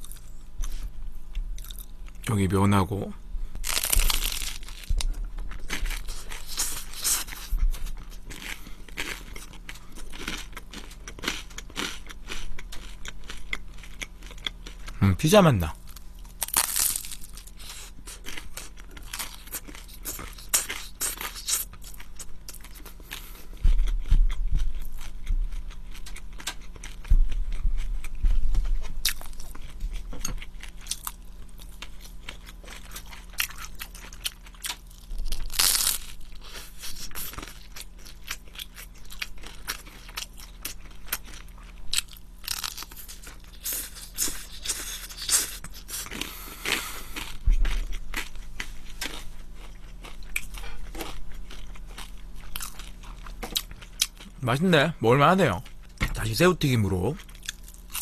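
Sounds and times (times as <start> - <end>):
person chewing food: 0.0 - 2.2, 3.6 - 15.0, 15.7 - 54.4, 57.0 - 58.0
crunchy bites: 3.6 - 7.5, 15.9 - 22.6, 32.2 - 48.4.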